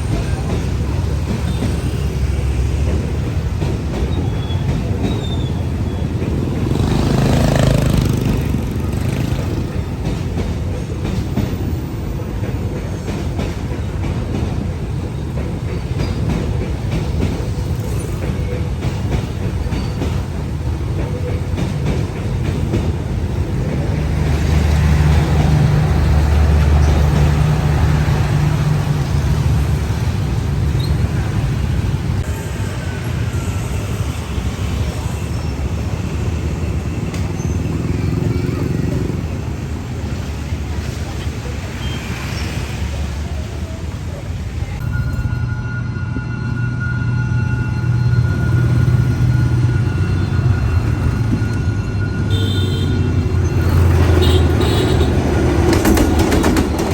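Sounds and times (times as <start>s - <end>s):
train rumbling on rails: 0.0s - 56.9s
wheels clicking over rail joints: 53.3s - 56.9s.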